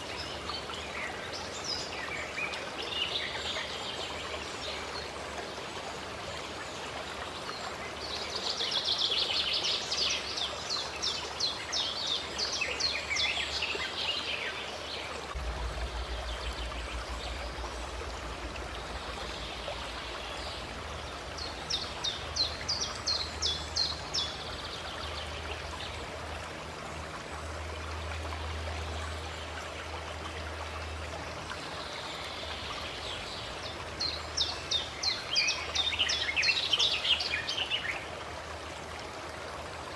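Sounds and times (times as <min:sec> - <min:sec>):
water running: 0:15.3 - 0:24.5.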